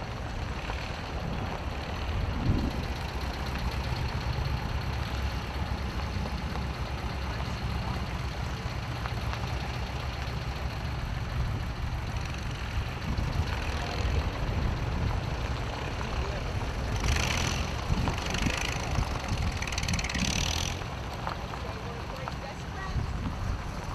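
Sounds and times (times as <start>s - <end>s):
tractor engines idling: 0.0s - 23.9s.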